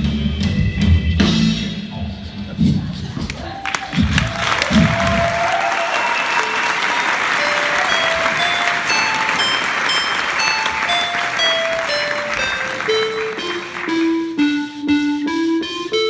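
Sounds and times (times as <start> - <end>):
audience applauding: 3.3 - 14.2
keyboard playing single notes: 6.6 - 16.0.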